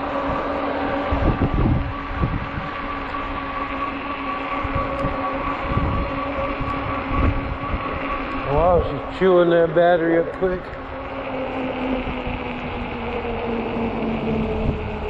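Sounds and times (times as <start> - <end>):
electric motor whining: 0.0 - 15.0
wind gusting across microphone: 0.0 - 15.0.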